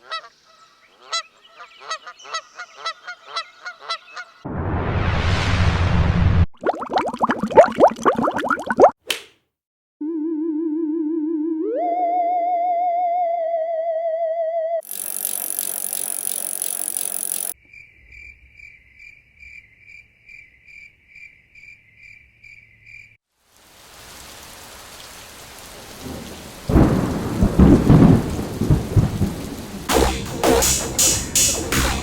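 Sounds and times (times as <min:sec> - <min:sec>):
high pulsing tone: 0:14.8 - 0:17.6, 0:29.9 - 0:32.0
rain-like hiss: 0:23.3 - 0:32.0
low thunder rumble: 0:26.0 - 0:29.9
loud hiss burst: 0:29.9 - 0:32.0.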